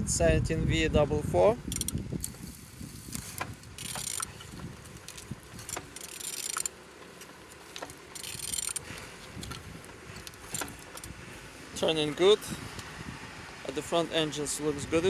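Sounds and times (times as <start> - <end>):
diesel engine turned by hand: 1.5 - 15.0
metallic clicks: 1.7 - 2.4, 3.1 - 11.2.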